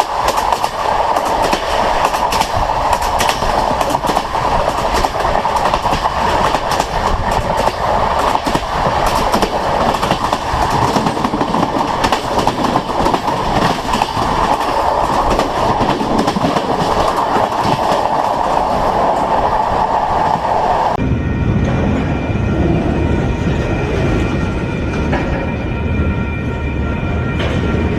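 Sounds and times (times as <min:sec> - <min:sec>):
train wheels clattering over rails: 0:00.0 - 0:21.0.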